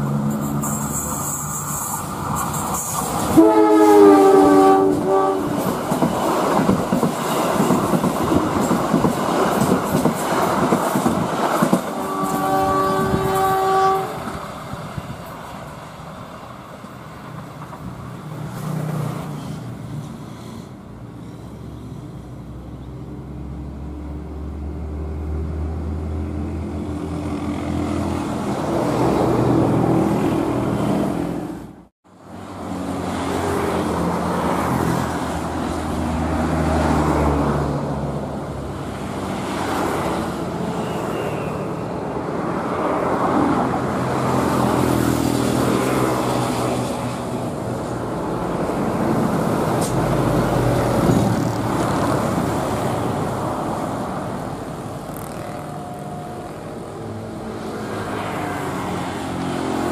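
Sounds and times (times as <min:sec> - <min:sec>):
train rumble and wheel clatter: 0:00.0 - 0:59.9
locomotive horn blasts: 0:03.3 - 0:05.7, 0:11.9 - 0:14.4, 0:55.2 - 0:57.0.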